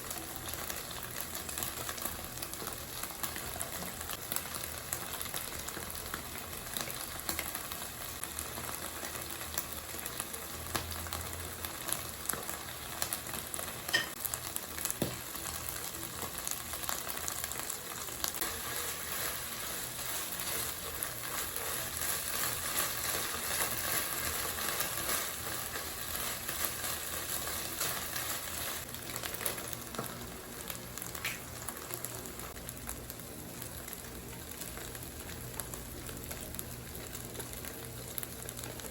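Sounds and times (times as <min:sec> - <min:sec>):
food sizzling in frying pan: 0:00.0 - 0:38.9
utensil clinking on pan: 0:13.9 - 0:14.2.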